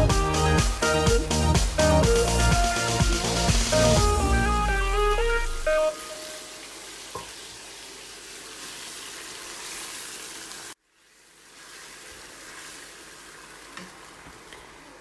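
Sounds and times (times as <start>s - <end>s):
chicken sizzling in oil: 5.2s - 15.0s.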